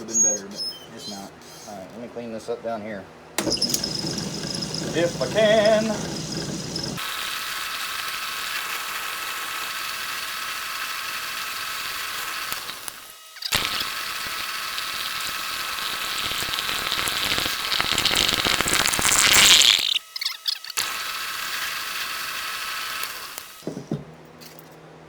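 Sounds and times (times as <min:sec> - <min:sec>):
turning tool scraping wood: 0:03.4 - 0:07.1, 0:13.4 - 0:20.0
lathe motor whine: 0:03.4 - 0:17.7.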